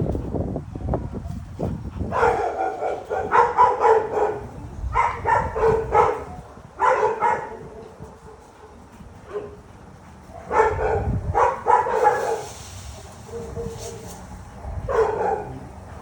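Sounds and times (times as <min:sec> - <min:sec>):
dog barking: 0:02.1 - 0:07.7, 0:10.4 - 0:12.5, 0:14.6 - 0:15.7.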